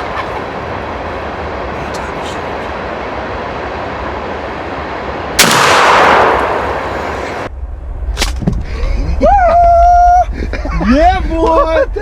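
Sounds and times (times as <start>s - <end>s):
shotgun shot echoing: 5.4s - 7.5s.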